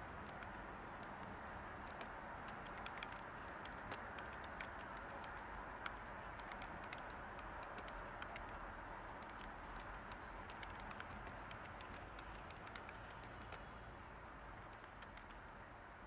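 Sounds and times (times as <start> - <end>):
white-noise hiss: 0.0 - 16.0
keyboard key clicks: 0.2 - 8.6, 9.2 - 13.7, 14.6 - 15.4.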